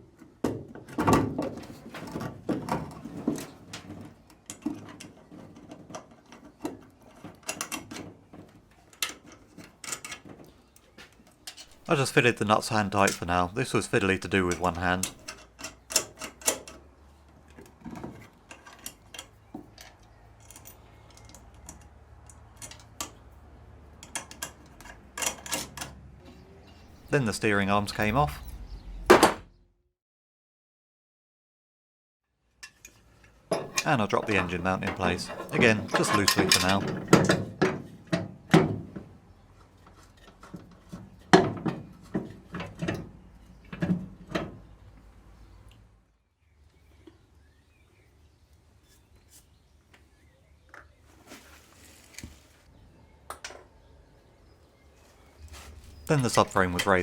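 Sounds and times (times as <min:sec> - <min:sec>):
tools and parts clicking: 0:32.6 - 0:37.4.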